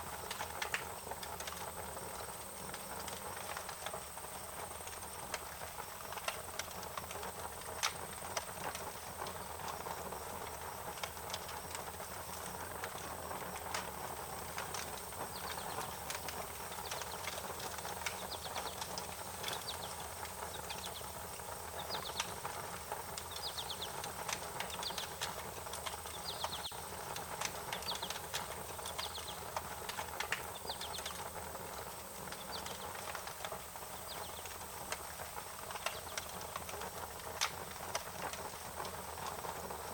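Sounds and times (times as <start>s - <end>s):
wood fire crackling and popping: 0.0s - 39.9s
bird chirping trills: 21.7s - 22.4s, 23.2s - 24.0s, 26.0s - 26.8s.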